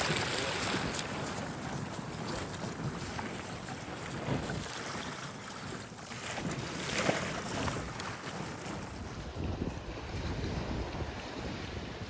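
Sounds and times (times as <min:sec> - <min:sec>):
water sloshing around kayak: 0:00.0 - 0:12.0
wind buffeting microphone: 0:00.0 - 0:12.0.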